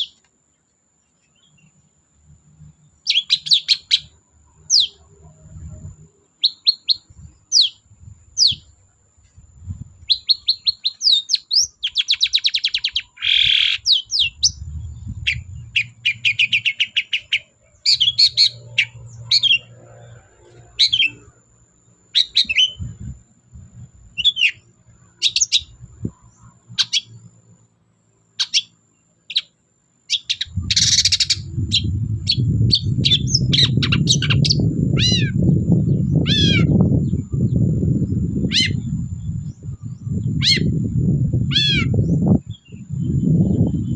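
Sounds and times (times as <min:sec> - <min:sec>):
bird singing whistles and trills: 0:03.0 - 0:05.0, 0:06.4 - 0:07.8, 0:08.4 - 0:08.7, 0:10.0 - 0:19.8, 0:22.1 - 0:23.1, 0:24.1 - 0:27.2, 0:30.1 - 0:43.9
low rumbling noise: 0:14.0 - 0:17.0, 0:17.6 - 0:22.0, 0:22.6 - 0:27.3, 0:30.4 - 0:43.9.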